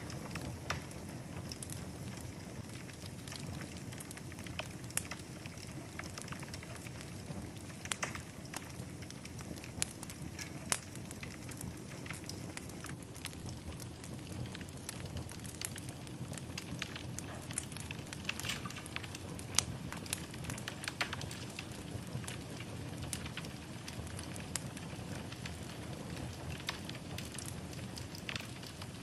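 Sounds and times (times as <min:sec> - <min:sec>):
fire crackling and popping: 0:00.0 - 0:29.0
fire flames rushing: 0:00.0 - 0:29.0.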